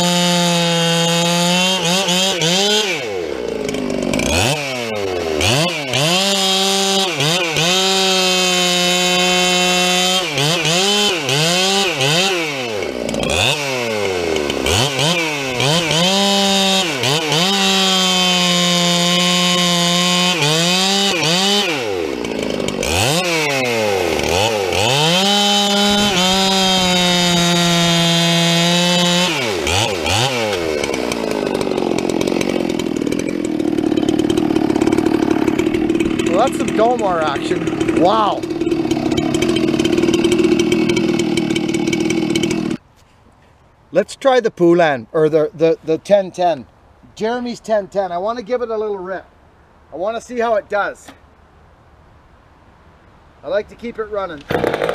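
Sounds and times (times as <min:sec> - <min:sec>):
chainsaw cutting wood: 0:00.0 - 0:42.8, 0:54.3 - 0:54.9.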